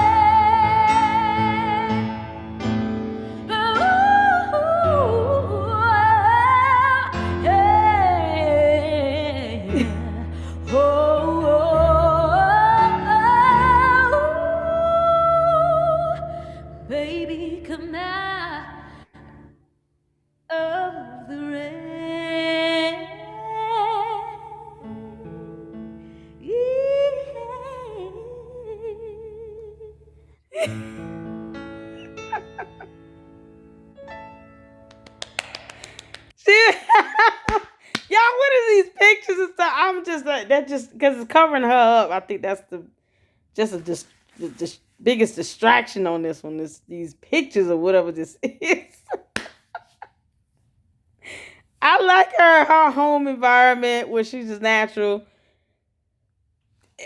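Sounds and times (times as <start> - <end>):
woman singing with vibrato: 0.0 - 2.4, 3.3 - 19.1, 20.5 - 25.4, 26.4 - 30.8, 36.4 - 42.1
electric keyboard chords: 30.7 - 35.1.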